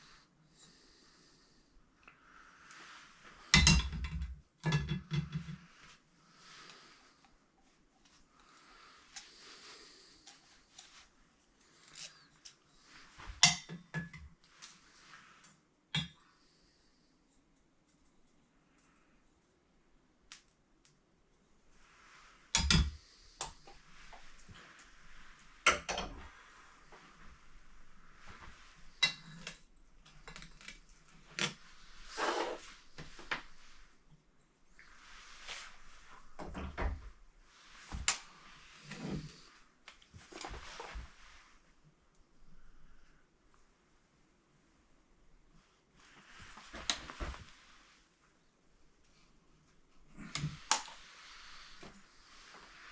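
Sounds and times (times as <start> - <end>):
tools knocking and clinking: 3.6 - 5.6
short scrape: 31.8 - 33.0.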